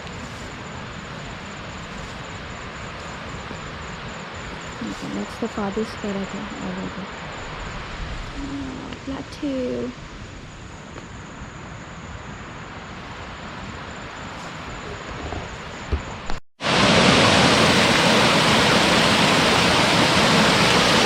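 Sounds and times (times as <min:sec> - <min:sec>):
water and wind rushing: 0:00.0 - 0:21.0
waterfall rushing: 0:16.6 - 0:21.0.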